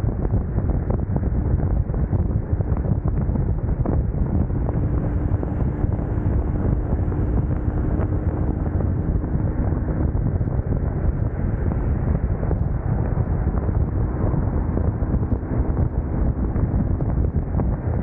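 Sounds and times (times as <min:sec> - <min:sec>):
wind buffeting microphone: 0:00.0 - 0:18.0
motorcycle engine rumble: 0:03.6 - 0:18.0
road noise: 0:03.8 - 0:18.0.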